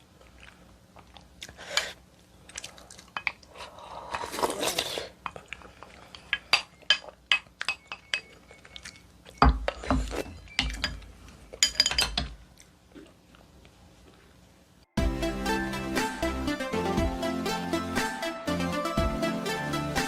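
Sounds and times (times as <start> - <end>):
utensils clinking on tableware: 6.5 - 12.4.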